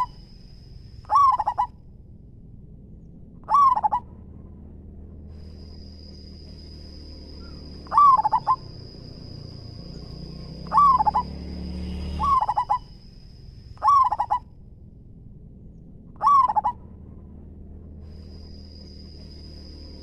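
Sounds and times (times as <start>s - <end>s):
dove cooing: 0.0s - 0.3s, 1.0s - 1.8s, 3.4s - 4.1s, 7.4s - 11.4s, 12.2s - 13.0s, 13.8s - 14.5s, 16.2s - 16.8s.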